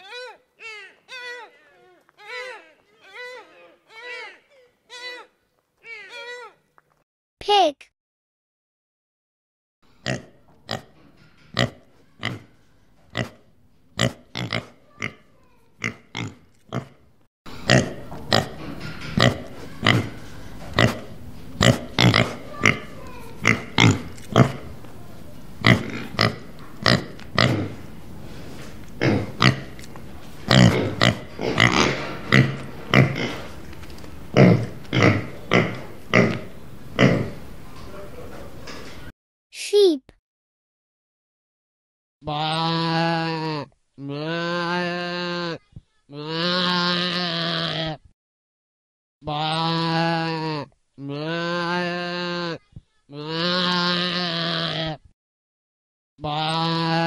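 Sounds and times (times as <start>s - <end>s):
pigs grunting: 10.0s - 13.4s, 14.0s - 24.8s, 25.6s - 27.9s, 29.0s - 29.8s, 30.5s - 33.6s, 34.3s - 37.4s, 42.3s - 45.6s, 49.3s - 52.6s.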